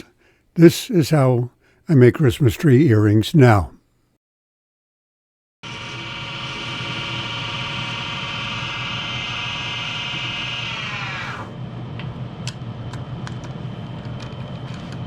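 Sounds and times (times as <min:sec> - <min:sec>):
wood lathe motor whining: 0:05.7 - 0:11.6.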